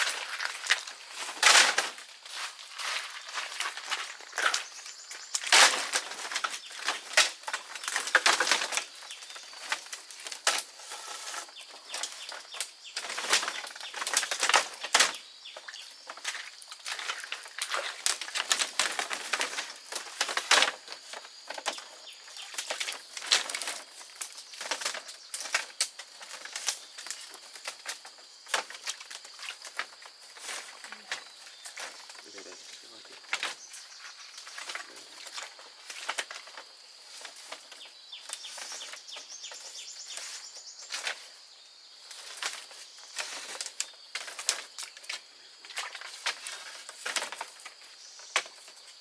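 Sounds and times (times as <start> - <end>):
rustling and crackling: 0.0 - 49.0.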